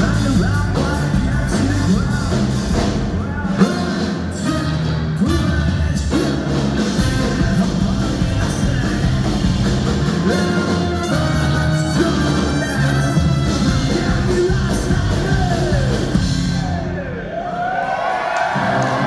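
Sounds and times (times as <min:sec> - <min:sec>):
person singing: 0:00.0 - 0:17.2
ska punk band playing live: 0:00.0 - 0:19.0.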